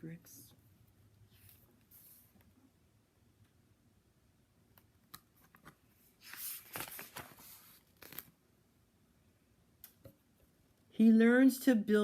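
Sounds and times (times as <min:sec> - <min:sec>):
paper page rustling: 0:05.4 - 0:08.4.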